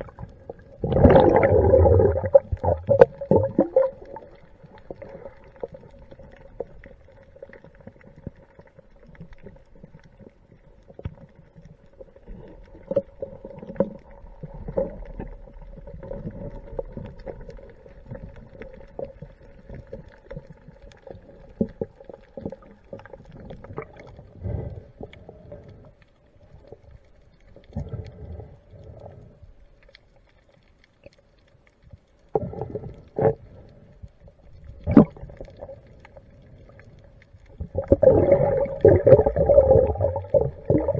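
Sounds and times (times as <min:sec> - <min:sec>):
water rumbling and sloshing underwater: 0:00.0 - 0:40.9.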